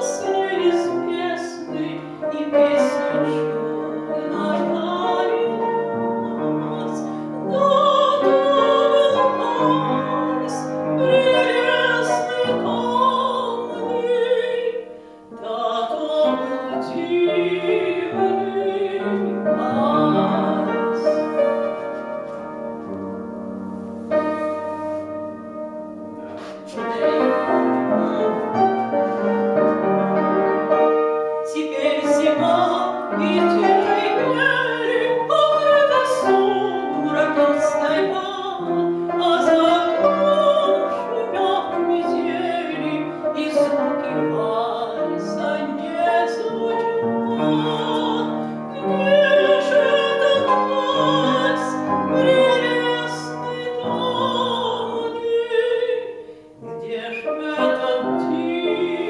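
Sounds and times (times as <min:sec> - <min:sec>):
woman singing operatically: 0:00.0 - 0:21.3, 0:26.7 - 0:29.0, 0:31.5 - 0:59.0
piano: 0:00.0 - 0:59.0.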